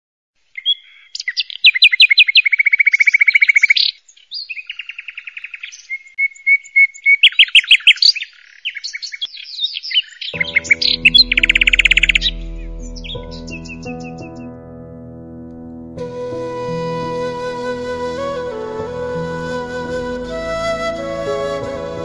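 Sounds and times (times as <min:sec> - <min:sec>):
songbird singing: 0:00.5 - 0:14.6
music: 0:10.4 - 0:22.0.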